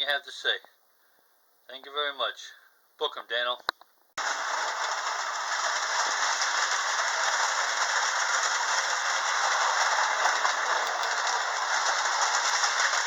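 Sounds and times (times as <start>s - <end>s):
model trains rattling on track: 4.2s - 13.0s.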